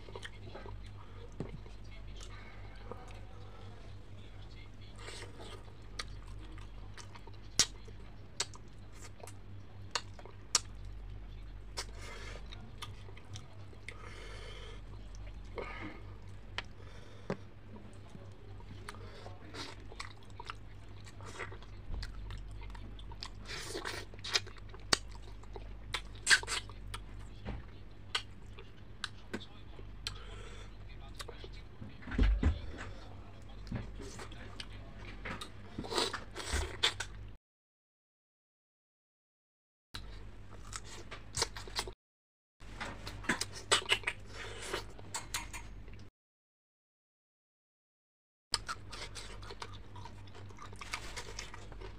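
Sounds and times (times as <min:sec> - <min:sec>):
fried fish being chewed: 0:48.6 - 0:51.9.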